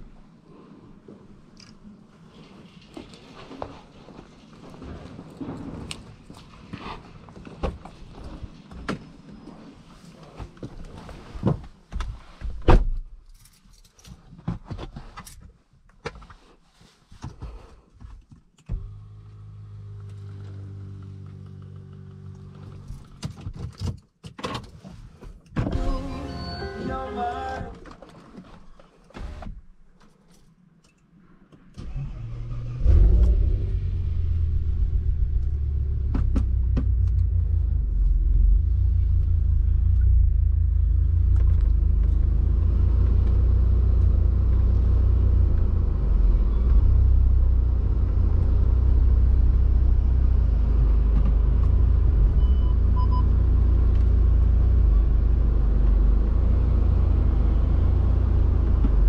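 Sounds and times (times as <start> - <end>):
car engine starting: 25.6 - 28.0, 31.7 - 59.0.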